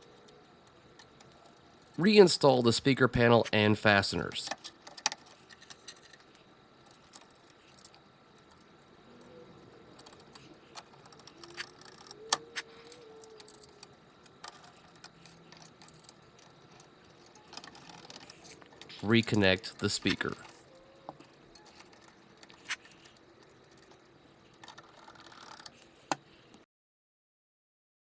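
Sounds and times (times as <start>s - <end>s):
metallic clicks of screws and nut driver: 4.5s - 6.3s, 10.0s - 19.4s.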